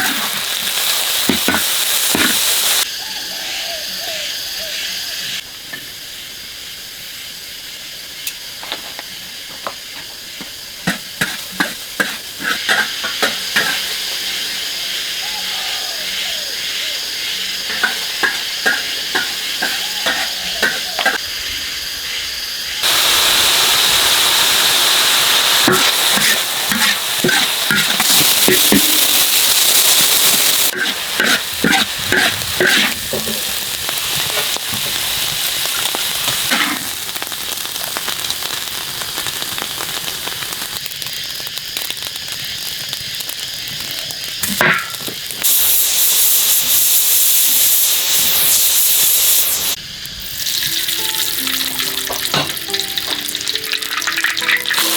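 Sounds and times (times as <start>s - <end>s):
food sizzling in hot oil: 0.0s - 54.9s
spatula scraping pan: 10.8s - 14.0s, 17.7s - 21.2s, 25.6s - 33.6s.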